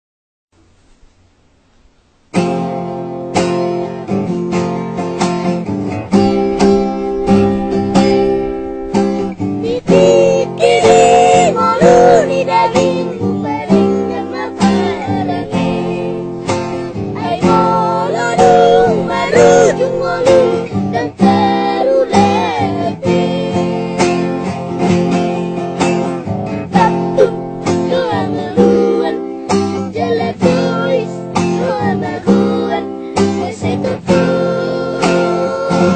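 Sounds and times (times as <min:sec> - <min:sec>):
acoustic guitar strumming: 0:02.2 - 0:35.9
child singing: 0:06.1 - 0:24.3, 0:26.7 - 0:35.9.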